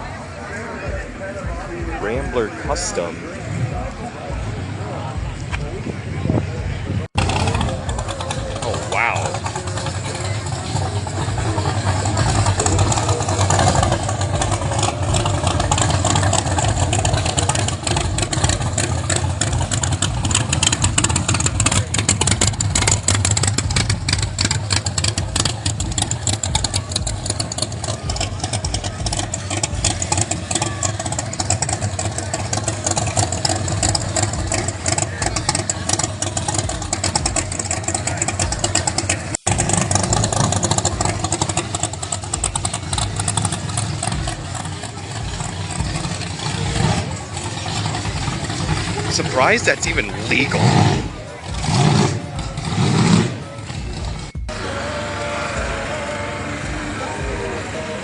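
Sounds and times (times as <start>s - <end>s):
car engine idling and revving: 0.0s - 58.0s.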